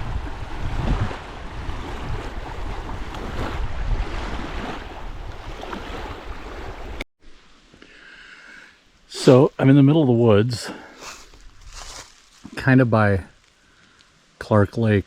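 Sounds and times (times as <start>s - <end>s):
waves washing in: 0.0s - 7.0s
wind buffeting microphone: 0.0s - 7.0s.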